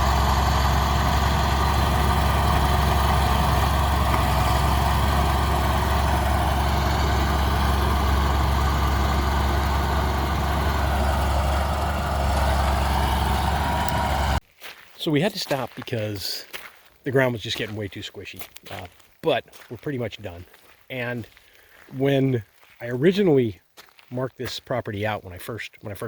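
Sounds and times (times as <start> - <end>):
bulldozer diesel engine rumbling: 0.0 - 14.4.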